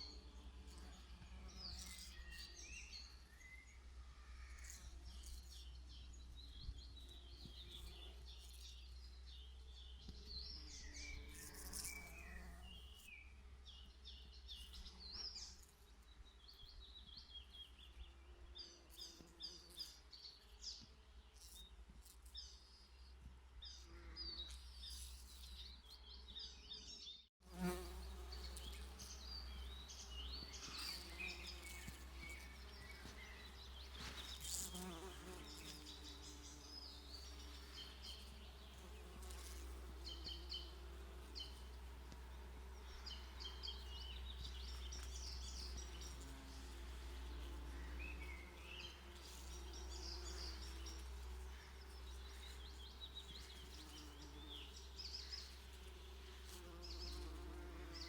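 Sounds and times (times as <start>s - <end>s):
songbirds chirping: 0.0s - 58.0s
bees buzzing: 27.5s - 58.0s.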